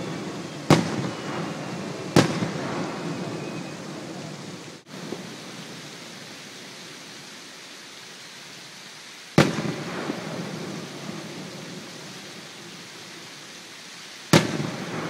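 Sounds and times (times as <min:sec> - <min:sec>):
firework booms: 0:00.0 - 0:05.8, 0:09.4 - 0:12.7, 0:14.3 - 0:15.0.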